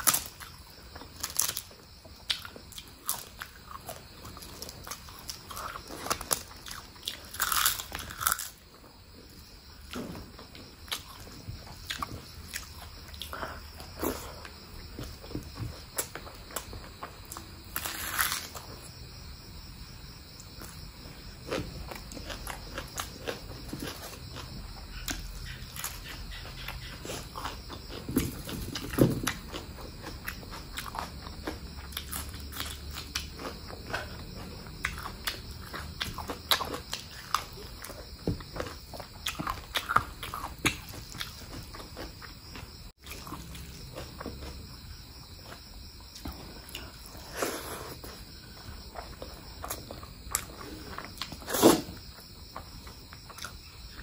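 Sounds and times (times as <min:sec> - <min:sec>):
person chewing and biting: 0:00.0 - 0:08.6, 0:21.4 - 0:51.9.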